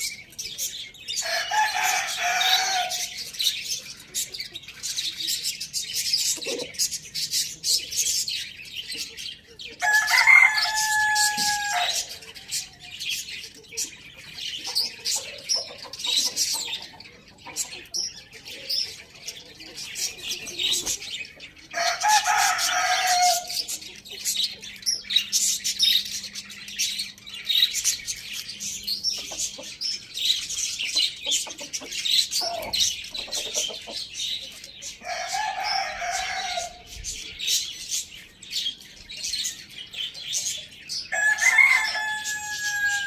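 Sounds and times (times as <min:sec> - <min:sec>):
small birds chirping: 0:00.0 - 0:43.0
rooster crowing: 0:01.2 - 0:03.1, 0:09.8 - 0:12.2, 0:21.8 - 0:23.6, 0:35.0 - 0:36.8, 0:41.1 - 0:43.0.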